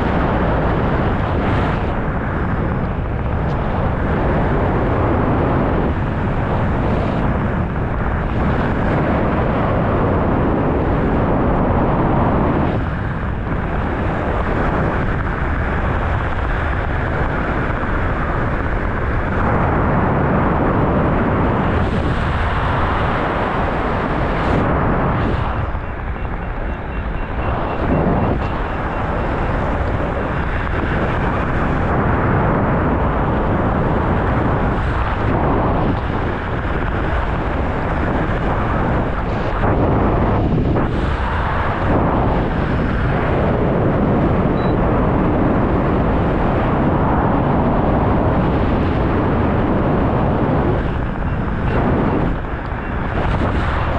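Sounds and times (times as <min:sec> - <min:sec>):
wind buffeting microphone: 0:00.0 - 0:53.9.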